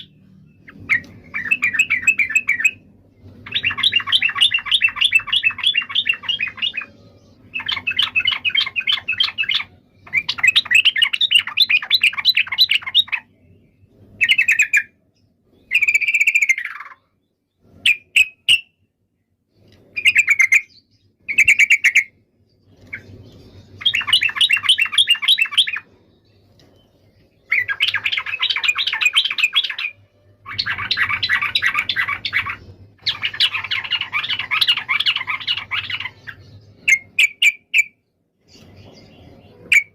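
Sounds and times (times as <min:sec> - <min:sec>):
bird whistled phrases: 0:00.0 - 0:02.8, 0:39.6 - 0:39.9
bird chattering song: 0:00.0 - 0:18.8, 0:19.6 - 0:39.9.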